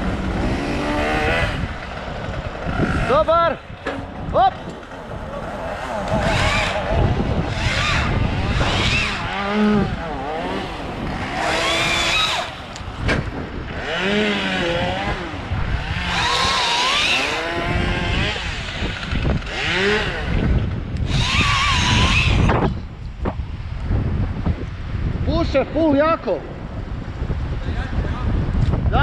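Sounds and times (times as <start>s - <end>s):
chainsaw revving in bursts: 0.0s - 3.3s, 5.0s - 12.7s, 13.6s - 22.5s.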